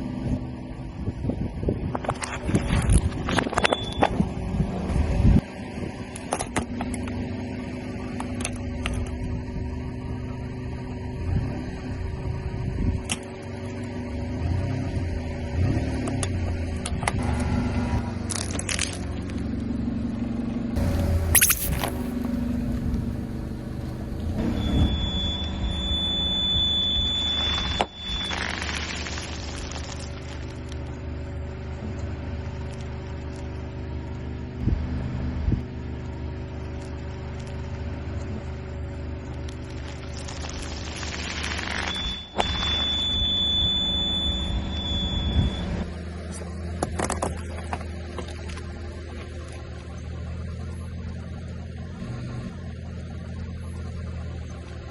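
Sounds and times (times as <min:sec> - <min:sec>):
short cracks: 0:20.8 - 0:23.1
machine humming: 0:20.8 - 0:26.4
high-pitched whine: 0:20.8 - 0:30.7, 0:39.8 - 0:46.0.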